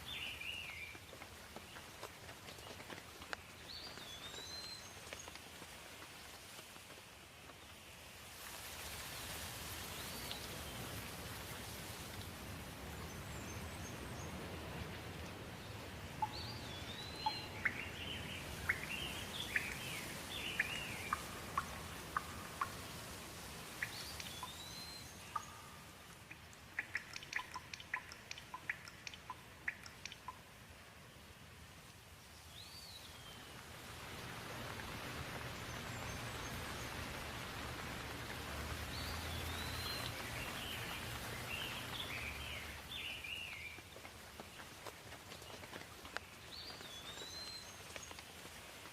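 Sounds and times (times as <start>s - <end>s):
steady rain hiss: 0.0s - 48.9s
birds calling: 15.7s - 23.0s, 23.7s - 30.4s, 34.3s - 44.7s
sharp dripping ticks: 16.1s - 30.6s.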